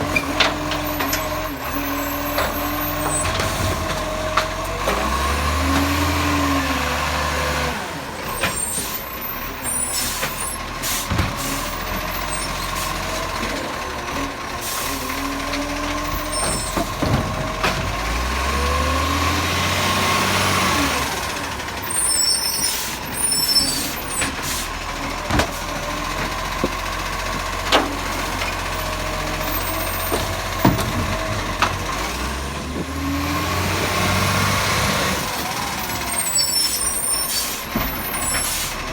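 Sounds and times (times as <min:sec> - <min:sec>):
truck engine running: 0:00.0 - 0:38.9
sharp knocks and clanks: 0:25.1 - 0:32.0.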